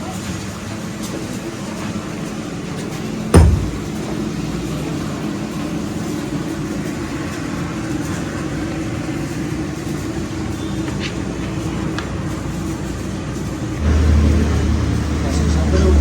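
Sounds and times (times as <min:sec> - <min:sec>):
heavy thump: 0:03.4 - 0:04.0
machine humming: 0:03.4 - 0:04.0, 0:13.8 - 0:16.0.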